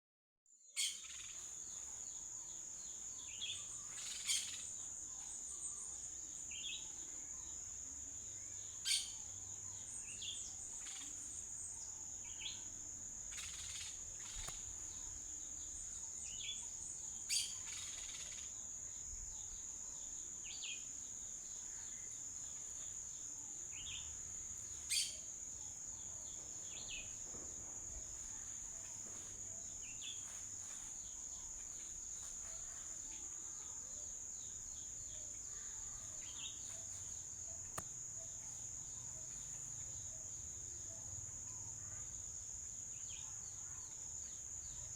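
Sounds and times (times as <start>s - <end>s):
bird chirps: 0.7s - 2.0s, 3.2s - 7.6s, 8.7s - 12.6s, 13.3s - 18.5s, 23.7s - 30.4s.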